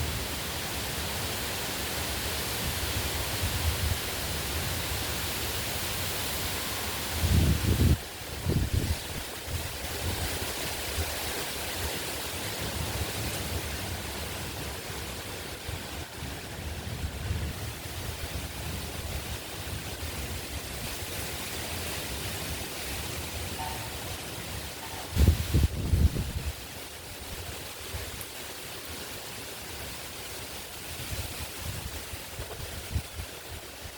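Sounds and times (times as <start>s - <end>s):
heavy wind blowing: 2.3s - 28.2s, 30.6s - 33.9s
wind buffeting microphone: 7.1s - 21.4s, 23.4s - 28.2s, 30.8s - 33.9s.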